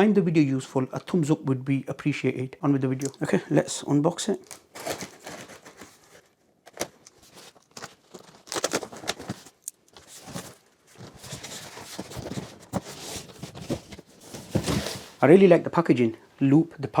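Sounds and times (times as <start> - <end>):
cardboard packaging rustling: 3.0 - 15.2.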